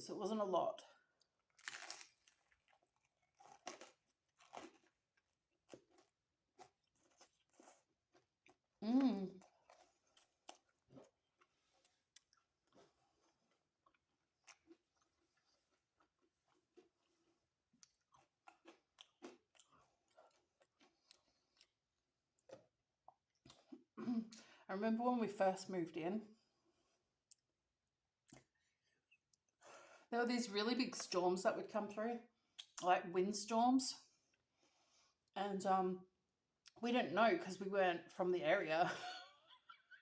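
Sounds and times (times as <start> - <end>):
chewing pizza crust: 1.0 - 24.0.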